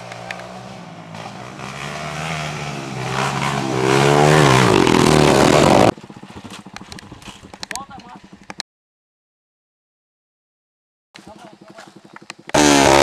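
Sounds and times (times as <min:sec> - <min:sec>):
motocross motorcycle engine revving: 0:00.0 - 0:08.6, 0:11.2 - 0:13.0.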